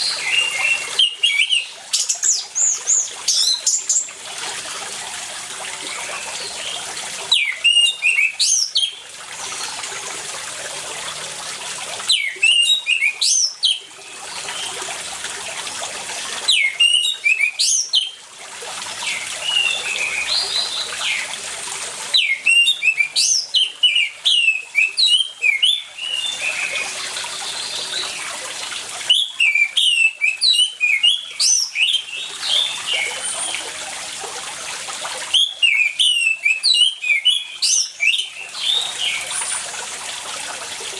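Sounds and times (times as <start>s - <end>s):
bird whistled song: 0.0s - 4.0s, 5.9s - 9.0s, 12.1s - 14.8s, 16.5s - 18.2s, 19.0s - 21.3s, 22.2s - 28.3s, 29.1s - 33.5s, 35.3s - 39.6s
trickle of running water: 0.0s - 40.9s.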